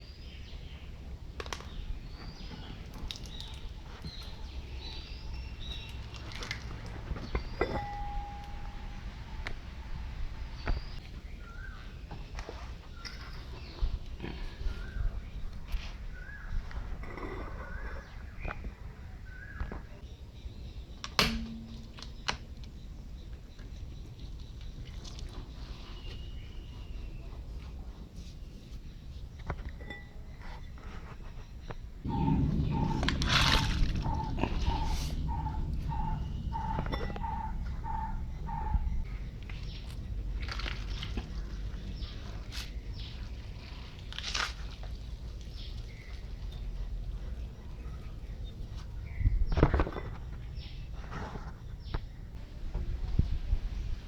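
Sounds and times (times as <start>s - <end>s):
birds chirping: 0.0s - 52.4s
low background rumble: 31.9s - 49.5s.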